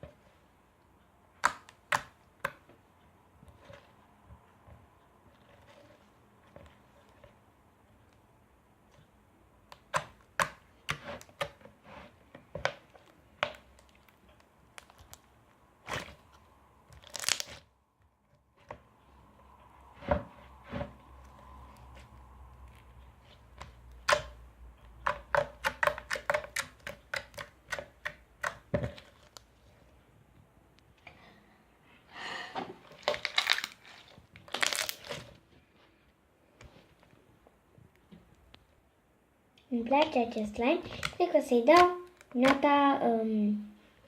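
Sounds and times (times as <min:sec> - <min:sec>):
slime clicking and popping: 0:01.4 - 0:02.2.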